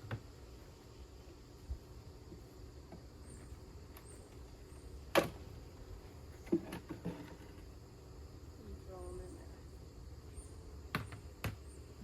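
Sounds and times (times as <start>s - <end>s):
hive frames knocking and scraping: 2.2s - 7.9s.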